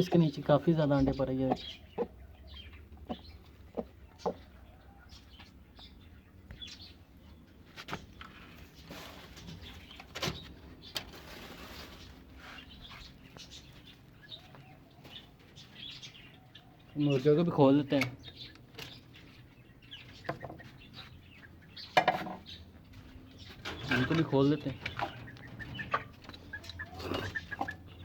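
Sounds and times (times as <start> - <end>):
birds chirping: 0.0 - 28.0
soft rustle: 7.6 - 15.8.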